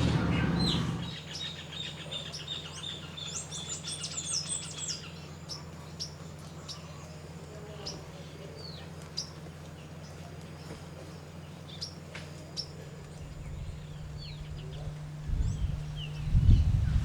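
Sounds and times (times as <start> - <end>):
low rumble: 0.0 - 1.2
small birds chirping: 0.0 - 17.0.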